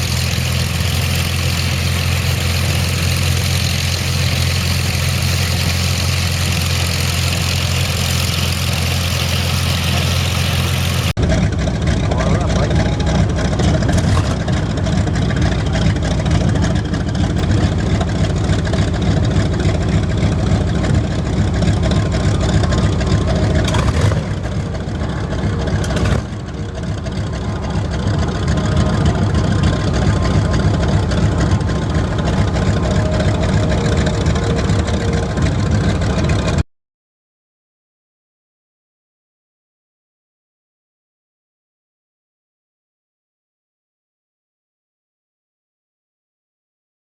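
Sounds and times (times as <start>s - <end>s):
aircraft engine running: 0.0s - 36.6s.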